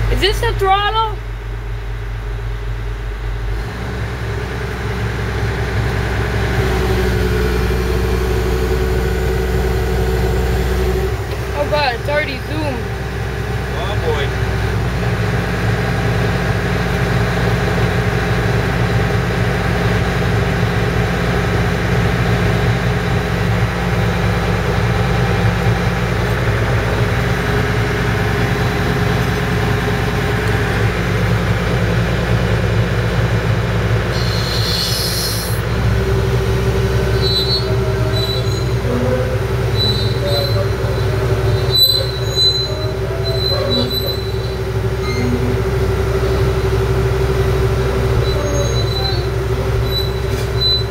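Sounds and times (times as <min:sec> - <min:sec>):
excavator diesel engine running: 0:00.0 - 0:50.9
metallic squealing of tracks: 0:34.1 - 0:35.7, 0:36.3 - 0:46.9, 0:47.6 - 0:50.9
squeaks: 0:37.0 - 0:46.4, 0:48.1 - 0:50.9.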